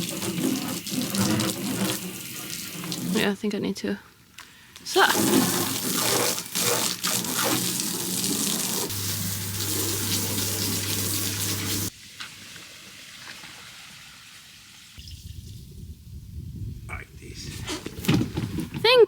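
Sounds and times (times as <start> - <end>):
water gushing and splashing: 0.0 - 3.2, 5.0 - 14.6.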